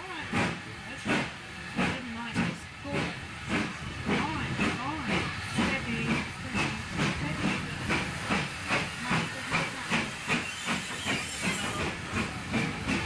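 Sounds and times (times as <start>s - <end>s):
steam locomotive exhaust chuffing: 0.0s - 13.0s.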